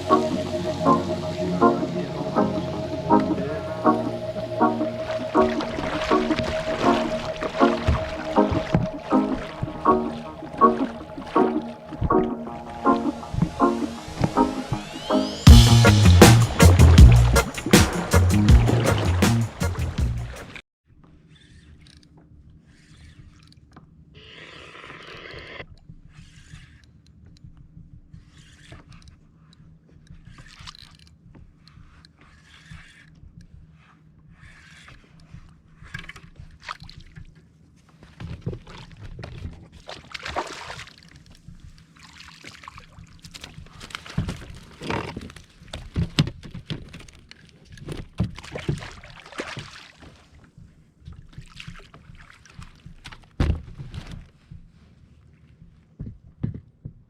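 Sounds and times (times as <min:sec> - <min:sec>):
paddle splashing in water: 0:00.0 - 0:20.6, 0:38.0 - 0:47.1, 0:47.8 - 0:50.5, 0:51.2 - 0:54.2.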